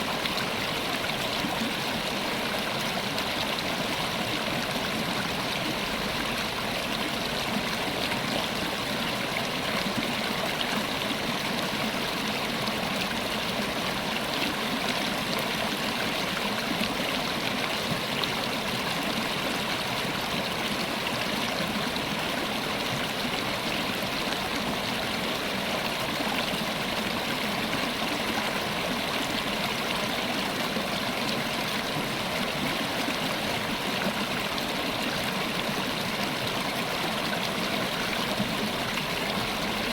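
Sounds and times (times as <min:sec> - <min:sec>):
river water running over rocks: 0:00.0 - 0:39.9.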